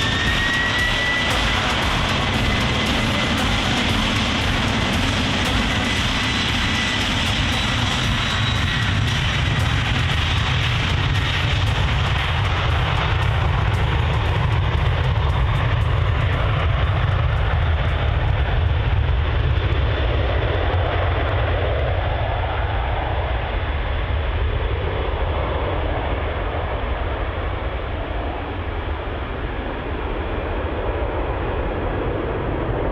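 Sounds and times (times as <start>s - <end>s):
jet engines at takeoff power: 0.0s - 32.9s.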